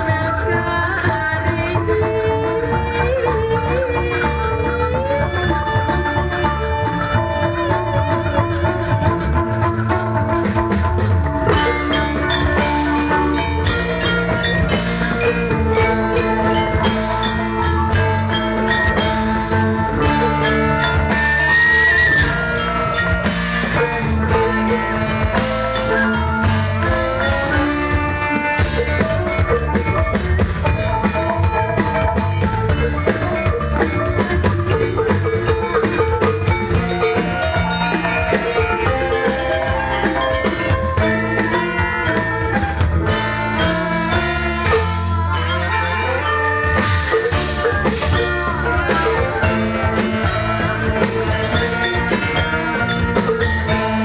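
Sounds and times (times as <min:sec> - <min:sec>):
drums: 0:00.0 - 0:54.0
mallet percussion melody: 0:00.0 - 0:54.0.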